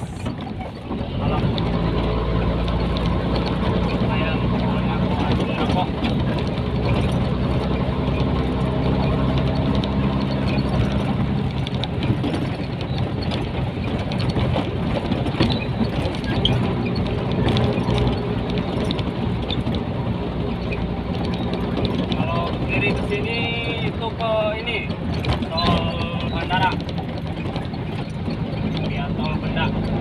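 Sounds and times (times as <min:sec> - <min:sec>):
diesel truck engine running: 0:00.0 - 0:30.0
light rattles and clicks: 0:00.0 - 0:30.0.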